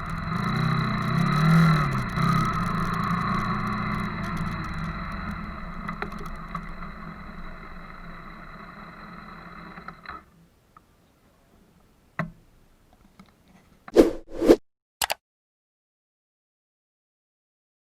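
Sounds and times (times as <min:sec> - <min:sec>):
motorcycle engine running: 0:00.0 - 0:06.1
sharp click: 0:14.0 - 0:15.2.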